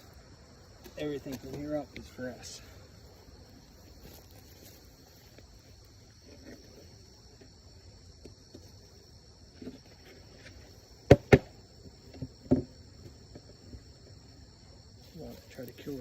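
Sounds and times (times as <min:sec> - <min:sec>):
insects chirring: 0:00.0 - 0:16.0
wooden boxes knocking: 0:11.1 - 0:11.6.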